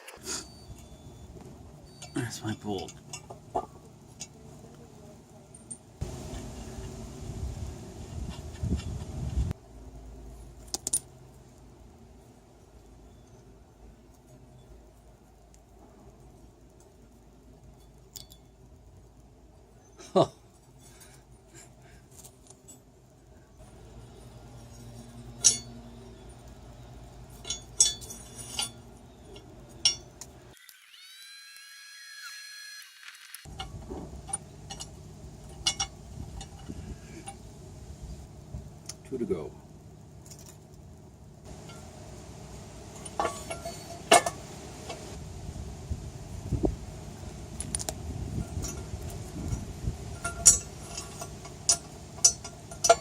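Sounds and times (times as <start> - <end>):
metal clinks: 0.4 - 4.4, 17.7 - 18.7, 19.8 - 30.4, 33.5 - 37.4, 42.9 - 44.5, 48.4 - 53.0
low steady rumble: 0.6 - 30.6, 33.5 - 53.0
metallic clinks of bolts: 10.6 - 11.1, 24.0 - 26.5, 27.3 - 30.3, 33.5 - 37.4, 50.2 - 53.0.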